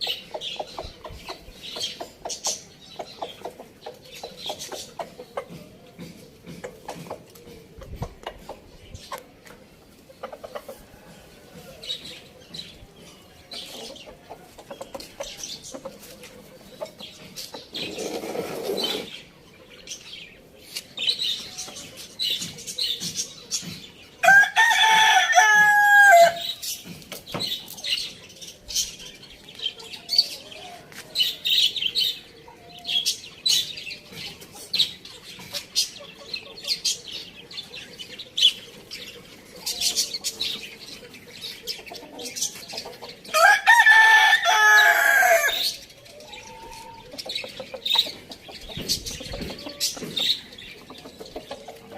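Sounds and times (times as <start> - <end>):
rooster crowing: 24.2 - 26.4, 43.4 - 45.6.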